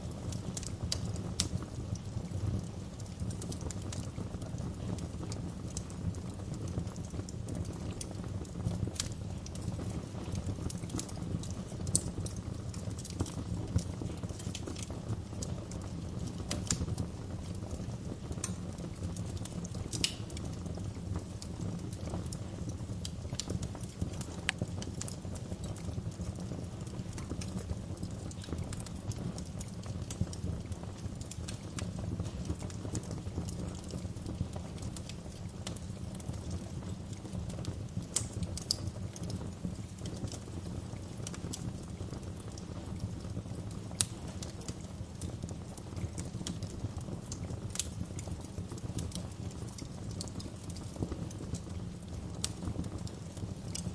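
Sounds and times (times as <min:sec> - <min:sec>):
fire crackling and popping: 0:00.0 - 0:53.9
fire rumbling: 0:00.0 - 0:53.9.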